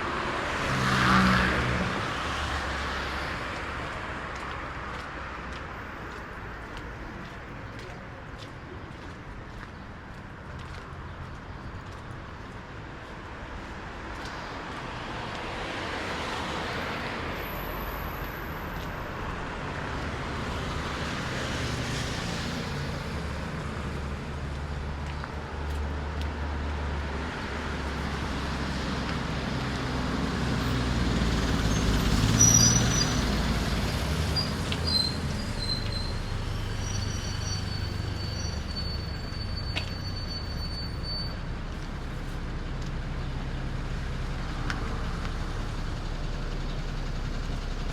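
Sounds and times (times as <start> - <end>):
vehicles passing on a road: 0.0 - 47.9
thin high squealing tones: 34.3 - 41.4.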